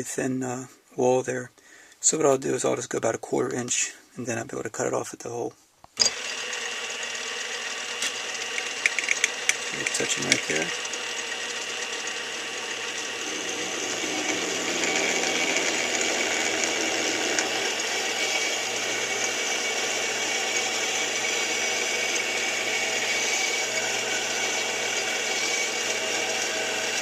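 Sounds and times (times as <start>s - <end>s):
drill bit drilling metal: 6.0s - 27.0s
metal lathe running: 6.0s - 27.0s.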